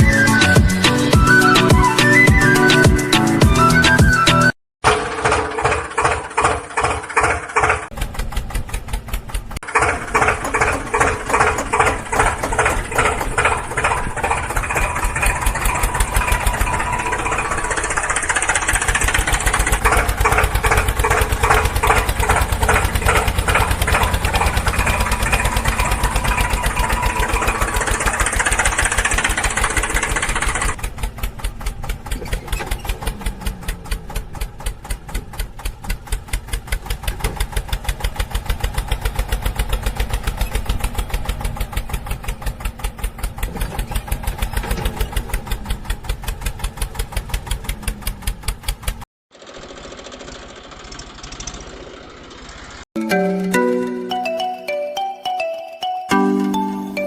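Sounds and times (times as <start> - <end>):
small tractor engine chugging: 4.8 - 52.8.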